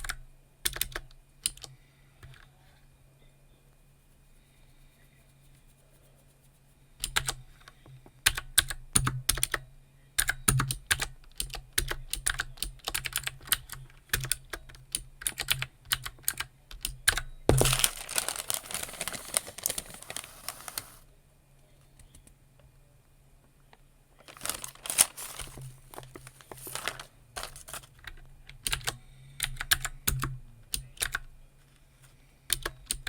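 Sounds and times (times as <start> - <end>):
keyboard clattering rustle: 17.5 - 21.0, 24.2 - 28.1.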